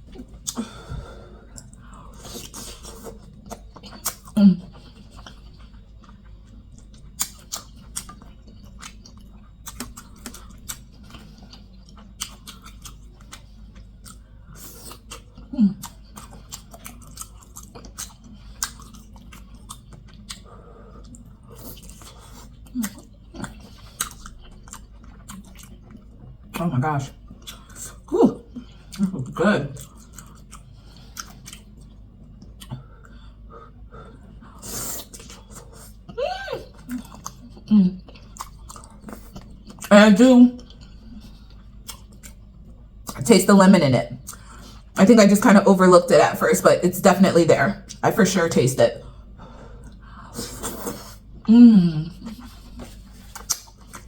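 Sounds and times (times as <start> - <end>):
close chewing with lip smacks: 0.0 - 0.6, 1.4 - 39.9, 40.6 - 43.2, 44.2 - 45.0, 49.0 - 51.5, 52.2 - 54.0
wet lip-smacking: 52.3 - 54.0.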